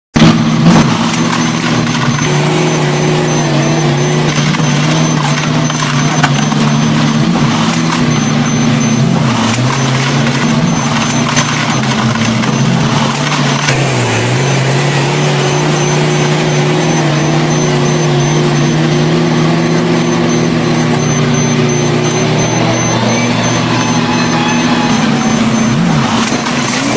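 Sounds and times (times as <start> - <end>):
heavy machinery diesel engines: 0.2 - 26.9
faint high beeps: 0.9 - 26.9.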